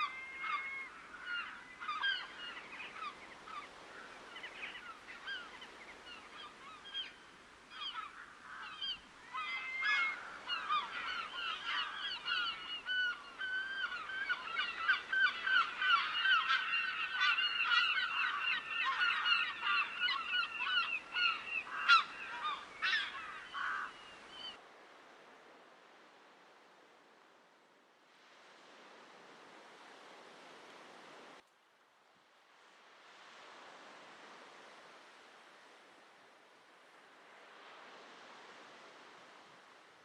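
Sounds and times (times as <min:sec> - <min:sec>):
flock of birds calling: 0:00.0 - 0:24.6.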